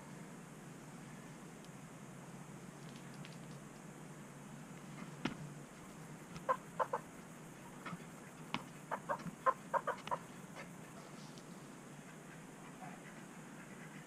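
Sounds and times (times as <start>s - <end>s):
chicken clucking: 6.4s - 7.1s, 8.9s - 11.1s.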